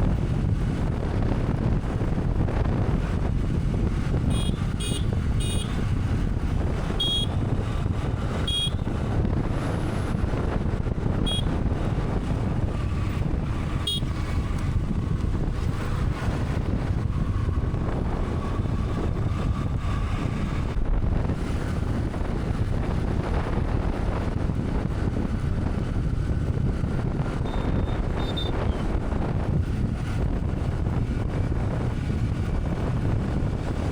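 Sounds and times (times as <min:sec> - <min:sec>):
motorcycle engine and road rumble: 0:00.0 - 0:33.9
wind buffeting microphone: 0:00.0 - 0:33.9
short horn beeps: 0:04.3 - 0:05.8, 0:06.9 - 0:07.4, 0:08.4 - 0:08.9, 0:11.2 - 0:11.6, 0:13.8 - 0:14.2, 0:27.4 - 0:28.8.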